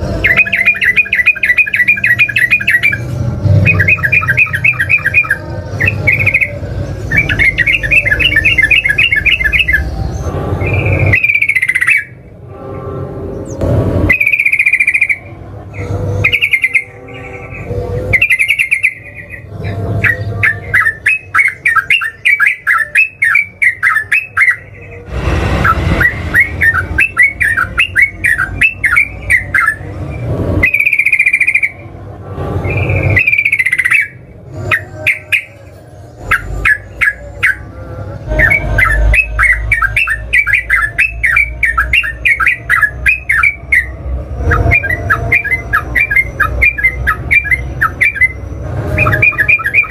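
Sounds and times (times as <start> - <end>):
bulbul singing: 0.0 - 12.5, 13.2 - 32.0, 32.6 - 49.9
short rushing noise: 25.0 - 27.7.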